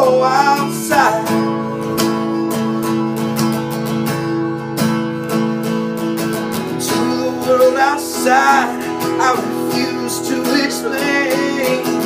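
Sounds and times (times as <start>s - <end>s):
person singing soul ballad: 0.0s - 2.8s, 6.7s - 12.0s
acoustic guitar strumming: 0.0s - 12.0s.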